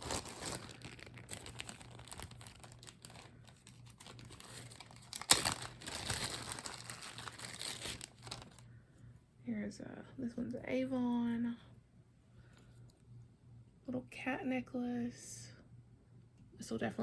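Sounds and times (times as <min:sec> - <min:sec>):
plastic bags crinkling: 0:00.0 - 0:08.6.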